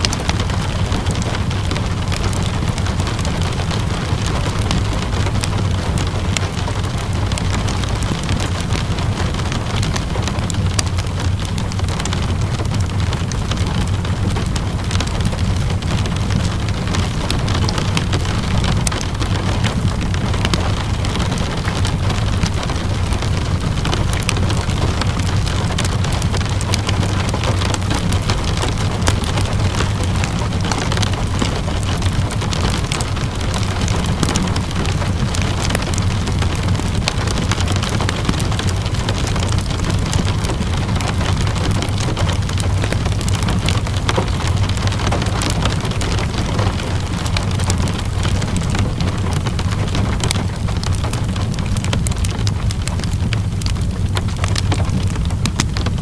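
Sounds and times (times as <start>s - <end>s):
steady rainfall: 0.0s - 56.0s
wood fire crackling: 0.0s - 56.0s.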